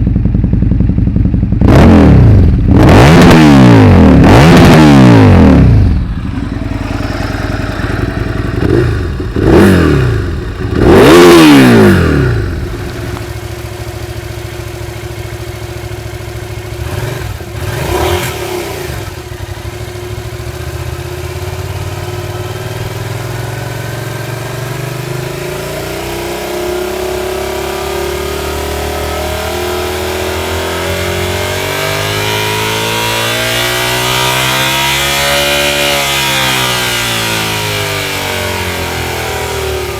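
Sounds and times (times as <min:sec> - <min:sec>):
motorcycle engine revving and idling: 0:00.0 - 0:39.9.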